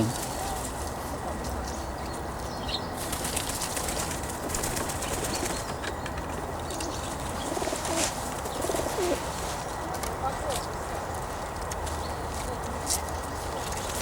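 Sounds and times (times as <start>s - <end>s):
birds' wings flapping: 3.0s - 6.2s.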